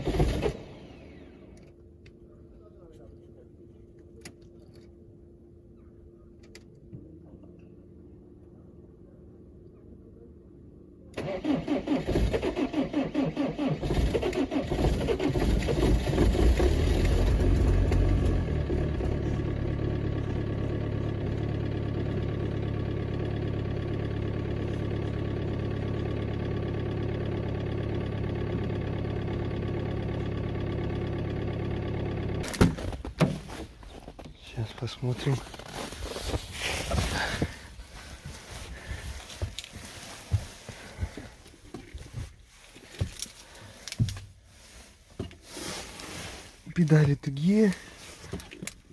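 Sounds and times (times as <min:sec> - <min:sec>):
starter motor cranking: 0:11.2 - 0:19.0
diesel engine revving and idling: 0:12.0 - 0:32.5.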